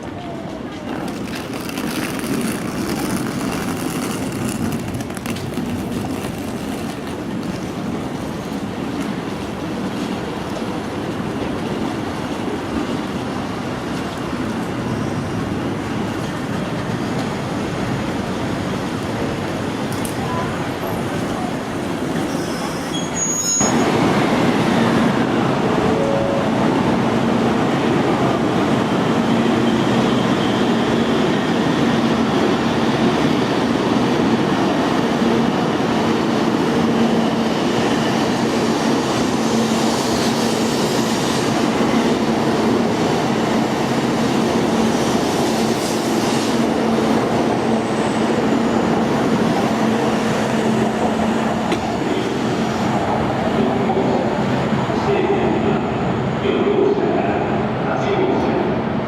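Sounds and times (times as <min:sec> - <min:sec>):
train running on rails: 0:00.0 - 0:59.0.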